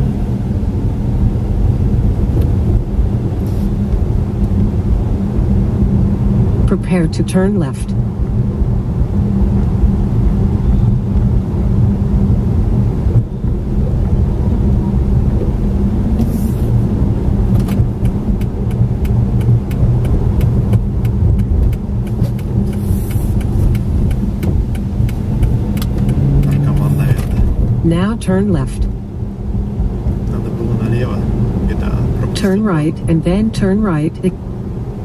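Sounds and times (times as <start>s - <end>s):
car engine and road noise: 0.0s - 35.0s
regular ticking: 17.3s - 28.9s.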